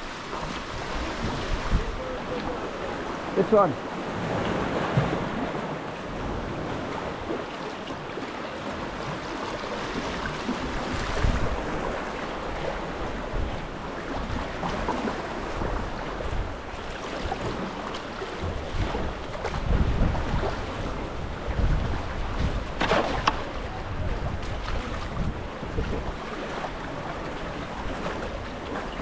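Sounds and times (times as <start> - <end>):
wind gusting on microphone: 0.0 - 3.4, 10.1 - 29.0
sea water splashing and lapping: 0.0 - 29.0.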